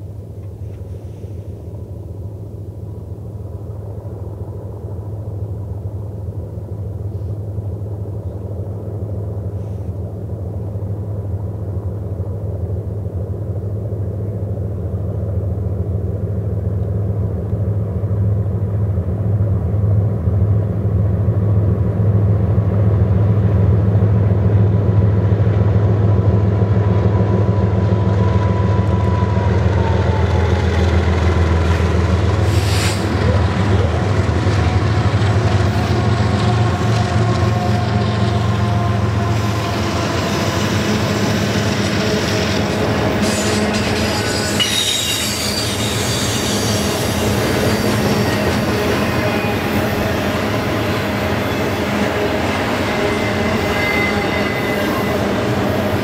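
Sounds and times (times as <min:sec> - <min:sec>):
diesel locomotive engines droning: 0:00.0 - 0:56.0
wheels rolling on rail: 0:00.0 - 0:56.0.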